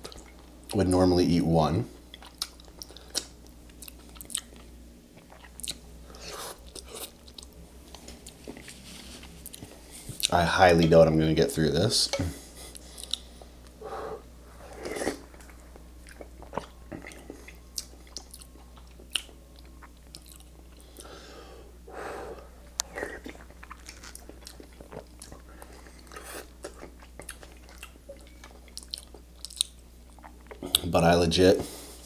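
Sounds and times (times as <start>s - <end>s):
wet chewing and mouth smacks: 12.7s - 13.3s, 14.8s - 21.1s, 22.8s - 30.8s.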